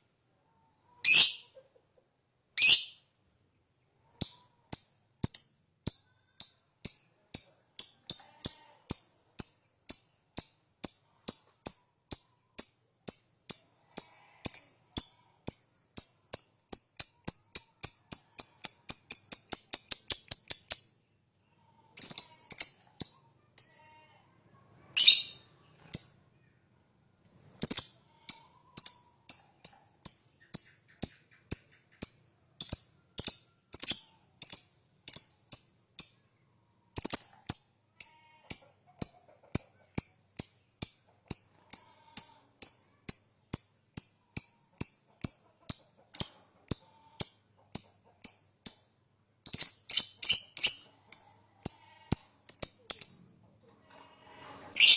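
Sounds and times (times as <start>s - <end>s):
lovebird chattering song: 1.0s - 1.5s, 2.6s - 3.0s, 11.3s - 20.9s, 22.0s - 23.7s, 25.0s - 26.2s, 27.6s - 36.2s, 37.0s - 37.7s, 39.0s - 48.8s, 49.5s - 53.2s.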